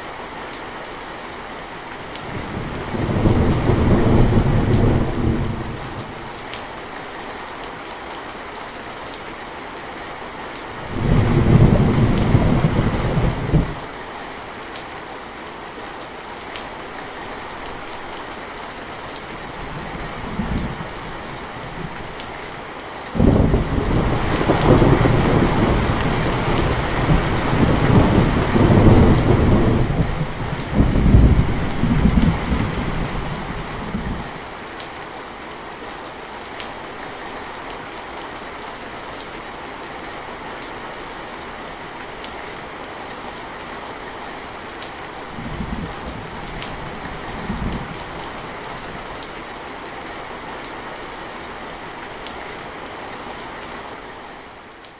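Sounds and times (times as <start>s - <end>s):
heavy rain hissing: 16.8s - 34.7s.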